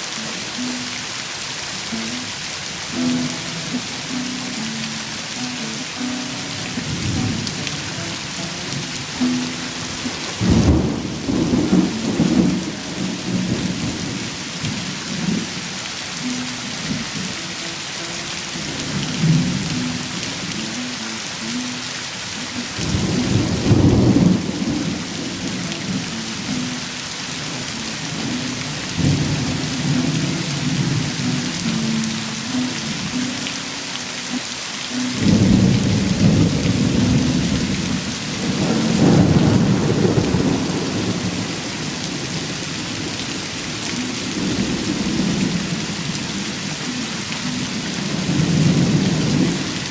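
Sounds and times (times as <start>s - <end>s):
heavy rain: 0.0s - 49.9s
rolling thunder: 10.2s - 15.5s, 23.1s - 26.0s, 35.3s - 43.4s.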